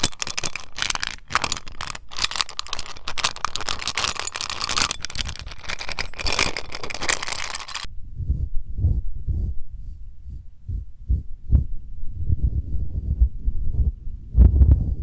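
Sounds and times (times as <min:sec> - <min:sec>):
rapid tapping on a metal tin: 0:00.0 - 0:07.9.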